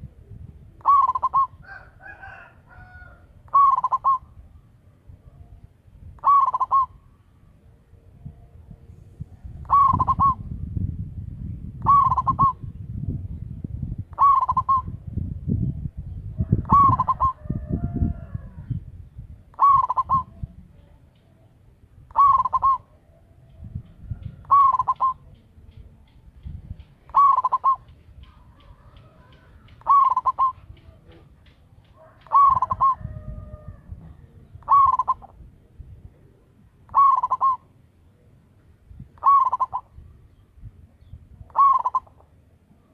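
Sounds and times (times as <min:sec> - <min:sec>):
dove cooing: 0:00.0 - 0:04.4, 0:06.2 - 0:07.0, 0:09.5 - 0:10.5, 0:11.8 - 0:12.7, 0:14.1 - 0:15.0, 0:16.3 - 0:18.8, 0:19.5 - 0:20.6, 0:22.0 - 0:25.4, 0:27.0 - 0:35.5, 0:36.2 - 0:37.7, 0:39.2 - 0:40.0, 0:41.4 - 0:42.4.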